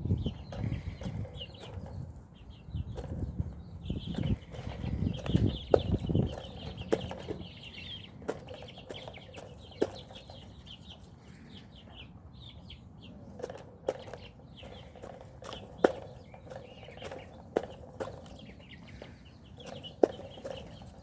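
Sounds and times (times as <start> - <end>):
high chirping: 0.0 - 21.0.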